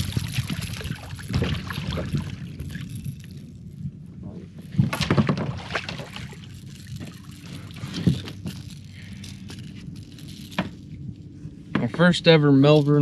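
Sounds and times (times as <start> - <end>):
water splashing and dripping: 0.0 - 3.0, 4.9 - 7.2
light wind noise: 0.0 - 13.0
knocks against boat: 4.8 - 6.0.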